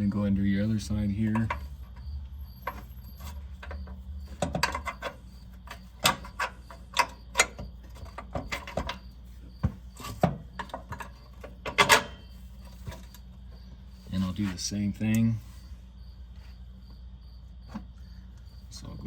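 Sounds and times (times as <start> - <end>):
metallic clicks and knocks: 3.6 - 9.0.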